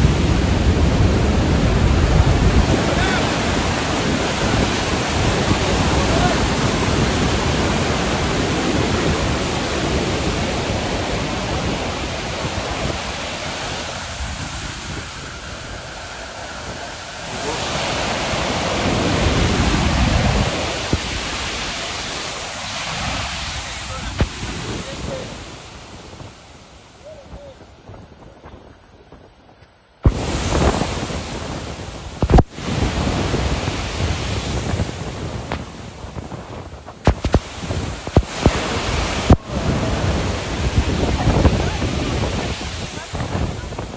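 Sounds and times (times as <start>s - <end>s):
waterfall roaring: 0.0s - 29.4s, 30.0s - 43.9s
wind buffeting microphone: 0.0s - 43.9s
microphone bumps: 35.3s - 39.4s.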